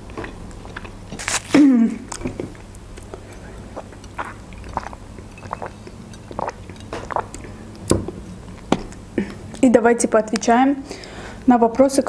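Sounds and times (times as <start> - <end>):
chewing mouth sounds: 0.0 - 9.6.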